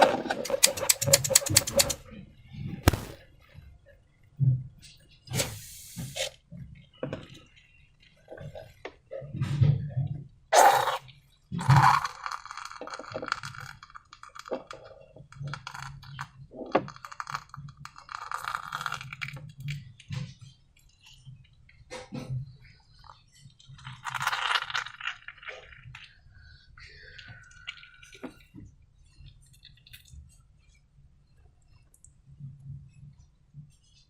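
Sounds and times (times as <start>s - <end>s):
containers and tools knocking: 0.4s - 2.0s.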